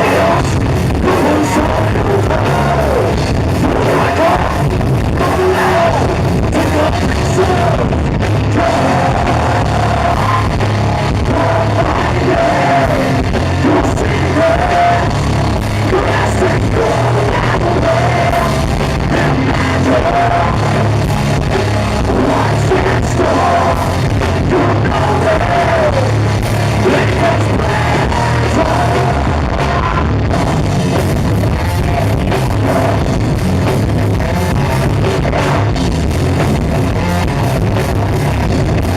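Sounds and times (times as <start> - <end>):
person singing and shouting: 0.0 - 21.0, 22.0 - 30.6
live heavy rock band: 0.0 - 38.9.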